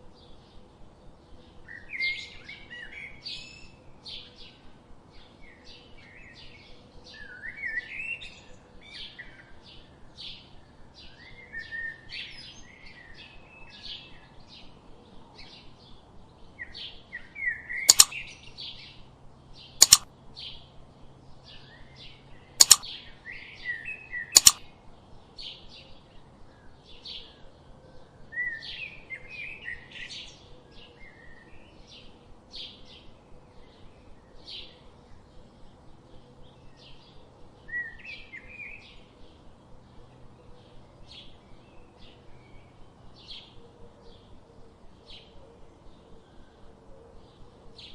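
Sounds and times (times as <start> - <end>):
loud sharp clicks: 17.9 - 18.1, 19.8 - 20.1, 22.6 - 22.8, 24.4 - 24.6
small birds chirping: 17.9 - 18.5, 19.6 - 20.0, 22.6 - 22.9, 24.4 - 24.6.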